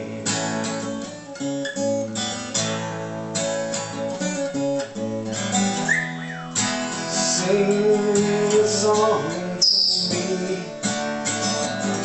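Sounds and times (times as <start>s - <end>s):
person singing: 0.0s - 0.8s, 7.1s - 12.0s
acoustic guitar strumming chords: 0.0s - 12.0s.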